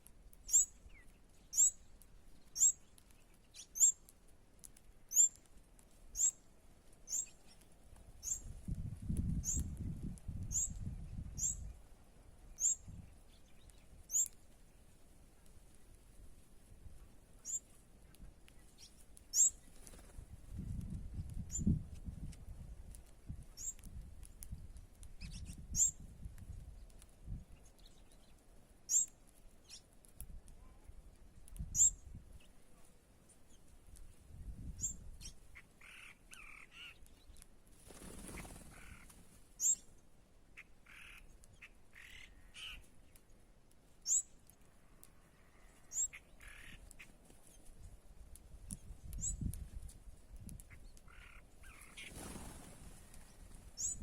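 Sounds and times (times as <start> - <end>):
very high bird chirp: 1.5 - 1.8, 2.6 - 2.8, 10.5 - 10.8, 12.6 - 12.9, 44.1 - 44.3, 53.8 - 54.0.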